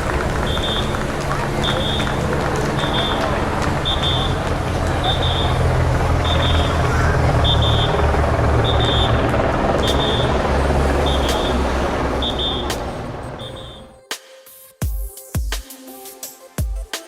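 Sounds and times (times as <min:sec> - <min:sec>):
motorcycle engine droning: 0:00.0 - 0:14.0
high double beep: 0:13.4 - 0:13.9.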